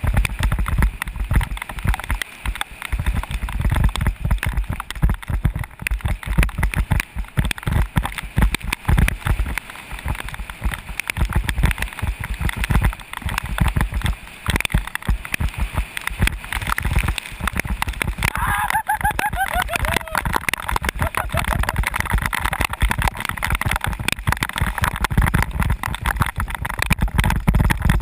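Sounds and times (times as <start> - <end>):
bicycle thumps and rattles: 0.0 - 28.0.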